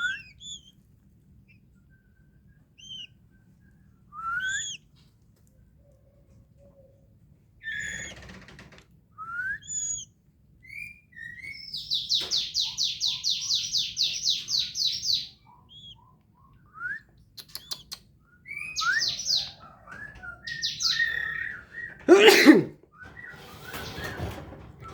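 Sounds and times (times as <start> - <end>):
bird whistled calls: 4.2 - 4.8, 9.2 - 10.1, 16.7 - 22.0.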